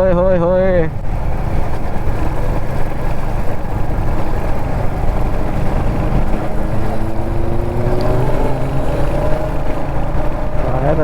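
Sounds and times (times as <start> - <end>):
motorcycle engine running: 0.0 - 11.0
wind rush on microphone: 0.0 - 11.0.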